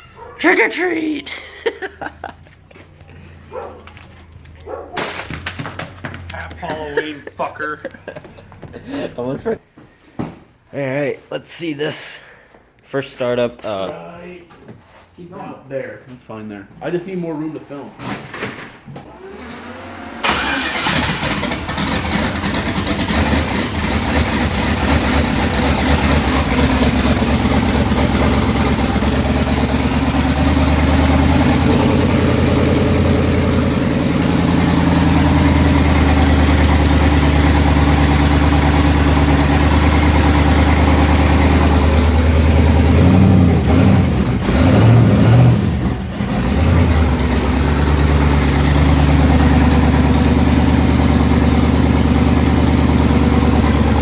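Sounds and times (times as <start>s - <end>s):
car engine starting and idling: 1.9s - 9.6s, 19.0s - 54.0s
engine revving: 19.1s - 54.0s.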